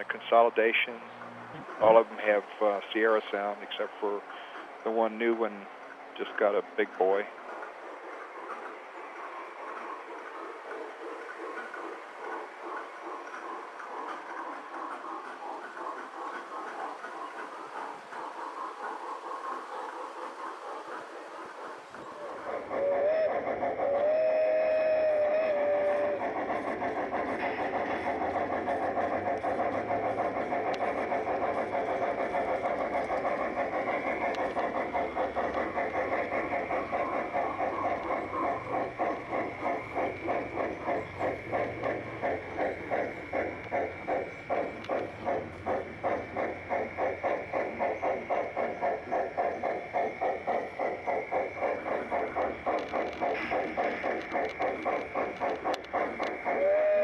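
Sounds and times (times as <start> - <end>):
steam train chuffing: 0.0 - 57.0
steam locomotive whistle: 22.8 - 26.2, 56.4 - 57.0.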